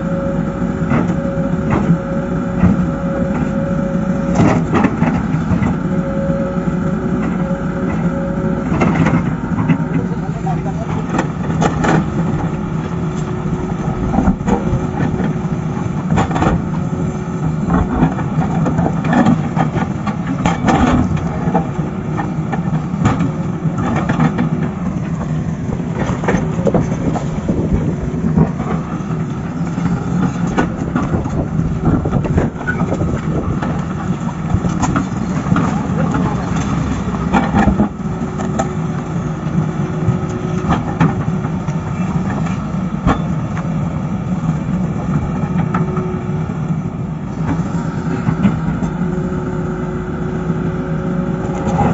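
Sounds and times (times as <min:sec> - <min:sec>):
diesel engine of heavy machinery: 0:00.0 - 0:51.9.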